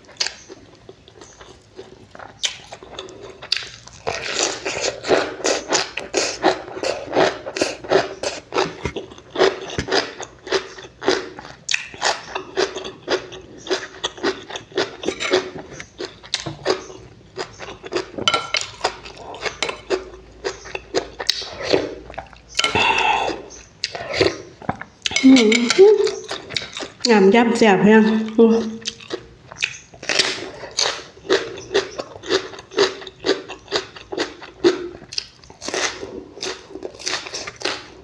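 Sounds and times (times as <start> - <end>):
wet crunchy chewing: 0.0 - 27.1, 28.6 - 38.0
cutlery clinking on a dish: 18.2 - 18.8.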